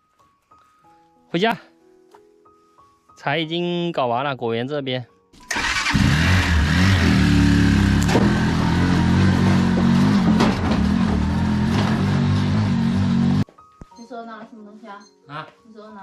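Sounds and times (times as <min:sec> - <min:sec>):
road or wind noise: 0:05.9 - 0:13.4
vehicle engine running: 0:05.9 - 0:13.4.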